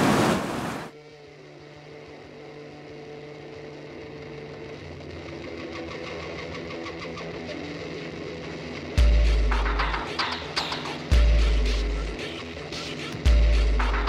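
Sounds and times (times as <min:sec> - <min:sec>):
whitewater roaring: 0:00.0 - 0:00.9
background music with low notes: 0:00.9 - 0:14.0
light rhythmic beat: 0:09.0 - 0:14.0.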